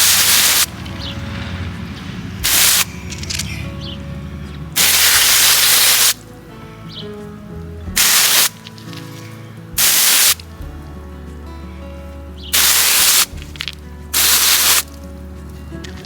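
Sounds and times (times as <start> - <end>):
water spray hissing from sprayer: 0.0 - 0.7, 2.4 - 3.6, 4.8 - 6.2, 8.0 - 8.6, 9.8 - 10.5, 12.6 - 13.4, 14.2 - 14.9
background music with held tones: 0.0 - 16.0.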